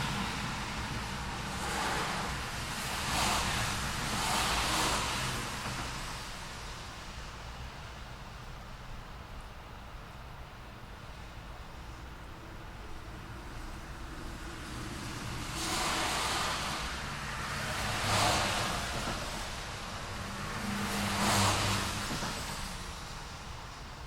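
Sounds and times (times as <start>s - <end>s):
cars passing: 0.0s - 7.2s, 12.6s - 24.0s
distant traffic rumble: 0.0s - 24.0s.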